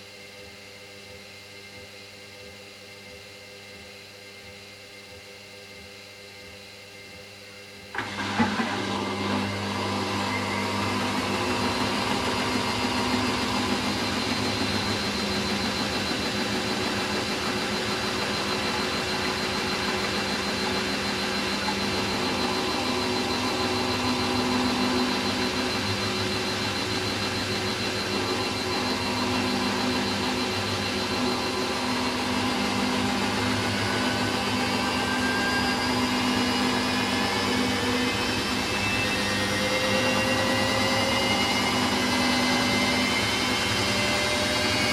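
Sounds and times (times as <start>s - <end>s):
washing machine spinning: 1.8s - 44.9s.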